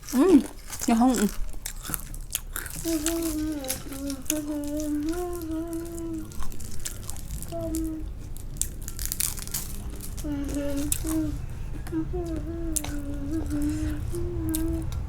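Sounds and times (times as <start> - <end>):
crunchy snacks being chewed: 0.0 - 15.0
person humming: 2.7 - 8.3, 10.0 - 15.0.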